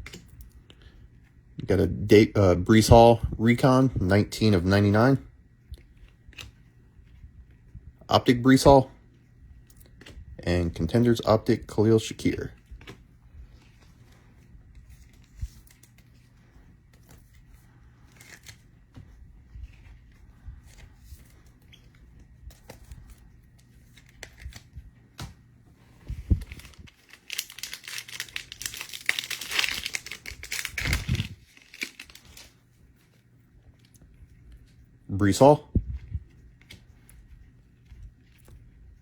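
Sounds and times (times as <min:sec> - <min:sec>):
light clicks and card handling: 0:00.0 - 0:01.3, 0:05.6 - 0:07.7, 0:08.7 - 0:10.9, 0:12.2 - 0:39.0
wrapper crinkling and tearing: 0:26.2 - 0:32.6.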